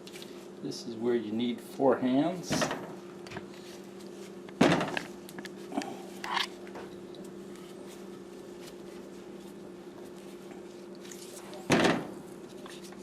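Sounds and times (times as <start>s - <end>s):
steady low hum: 0.0s - 13.0s
rope handling rustle and knocks: 2.5s - 13.0s.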